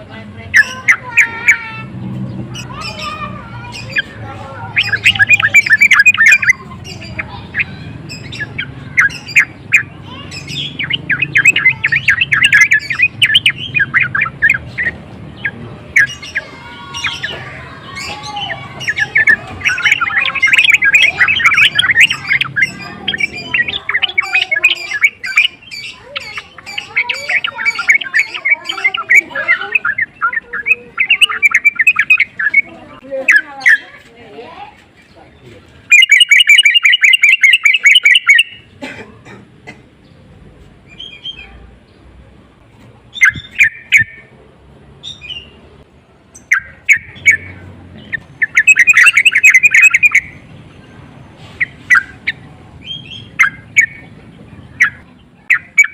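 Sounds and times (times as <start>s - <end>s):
bird singing rapid chattering phrases: 0.0s - 38.9s, 39.5s - 55.9s.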